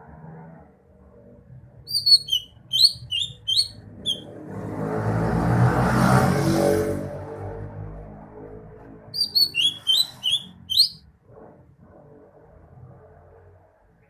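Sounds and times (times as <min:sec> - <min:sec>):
bird whistling song: 0:01.9 - 0:04.3, 0:09.2 - 0:11.0.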